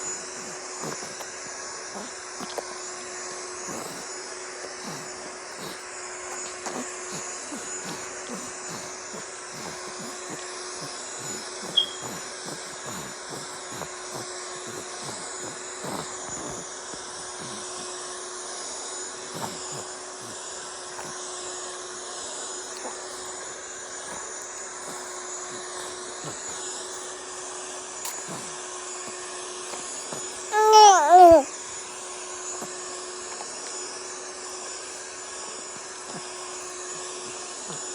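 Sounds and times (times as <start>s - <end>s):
vacuum cleaner motor hum: 0.0s - 37.9s.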